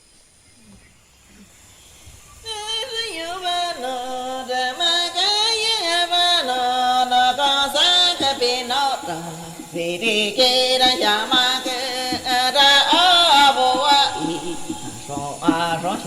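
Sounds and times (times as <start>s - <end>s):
person singing a chant: 2.4s - 16.0s.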